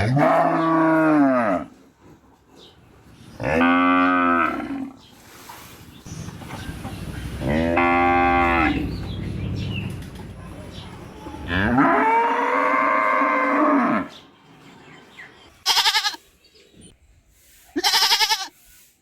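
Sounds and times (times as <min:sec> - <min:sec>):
cow mooing: 0:00.0 - 0:01.7, 0:07.4 - 0:08.9, 0:11.5 - 0:14.2.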